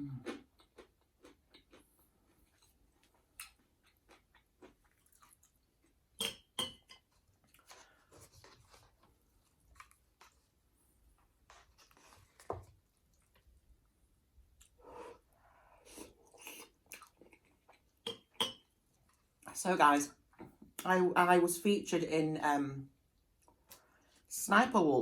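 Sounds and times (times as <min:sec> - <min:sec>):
person chewing food: 0:00.0 - 0:19.5.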